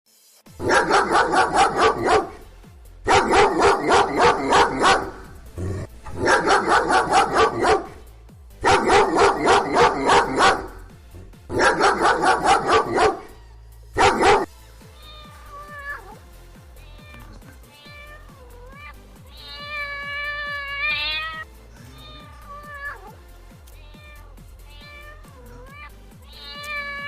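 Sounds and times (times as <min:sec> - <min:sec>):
dog barking: 0:00.6 - 0:02.4, 0:03.1 - 0:05.3, 0:06.1 - 0:08.0, 0:08.6 - 0:10.9, 0:11.5 - 0:13.3, 0:14.0 - 0:14.5.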